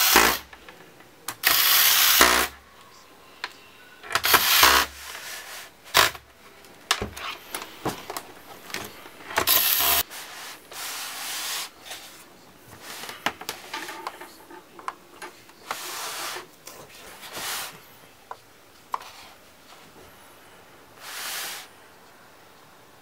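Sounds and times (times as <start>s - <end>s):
electric screwdriver running: 1.4s - 2.5s, 9.4s - 10.0s.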